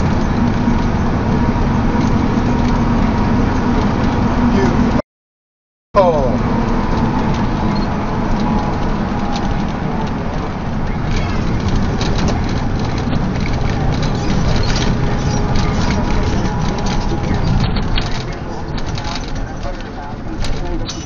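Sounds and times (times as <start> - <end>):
road and engine noise: 0.0 - 5.0, 6.0 - 21.0
small rattles and knocks: 6.6 - 21.0.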